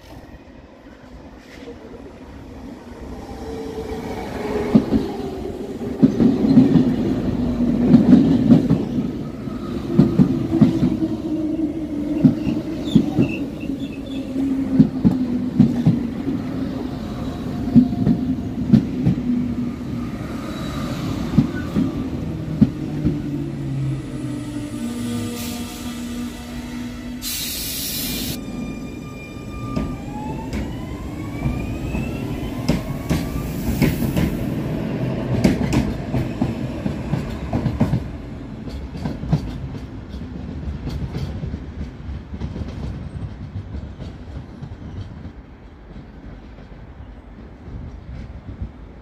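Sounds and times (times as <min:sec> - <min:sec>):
train whine falling in pitch: 0:23.7 - 0:34.3
train wheels clacking over joints: 0:35.3 - 0:48.8.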